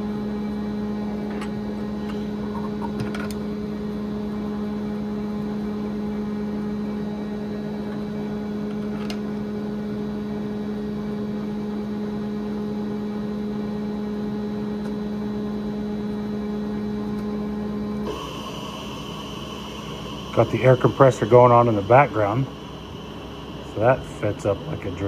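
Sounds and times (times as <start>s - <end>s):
air compressor running: 16.6s - 25.0s.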